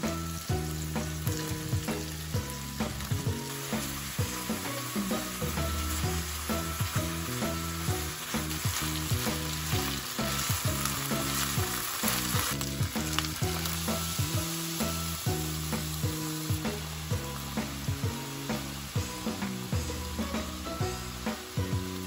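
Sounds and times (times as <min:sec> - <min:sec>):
food sizzling in a frying pan: 0:00.0 - 0:22.0
light background music: 0:00.0 - 0:22.0.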